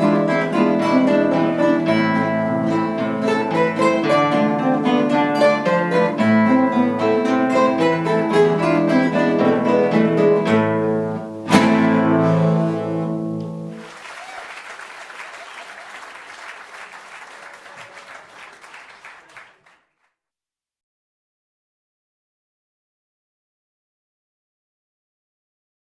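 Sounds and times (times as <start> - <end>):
guitar ensemble playing: 0.0 - 14.0
audience applause: 13.7 - 19.9.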